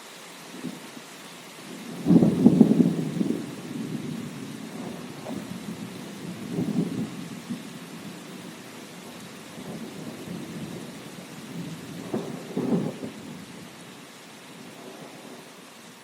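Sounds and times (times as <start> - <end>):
steady rain: 0.0 - 16.0
thunder rolling: 1.8 - 13.5.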